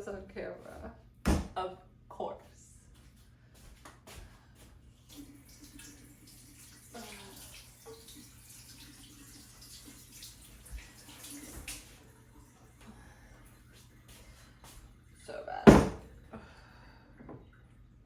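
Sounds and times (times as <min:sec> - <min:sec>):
liquid running and splashing: 0:05.0 - 0:15.2.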